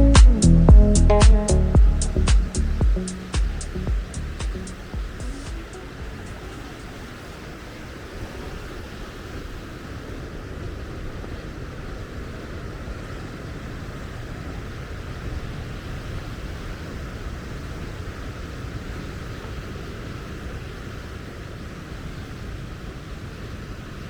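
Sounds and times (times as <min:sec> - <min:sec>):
wind: 0:00.0 - 0:24.0
ocean surf: 0:00.2 - 0:24.0.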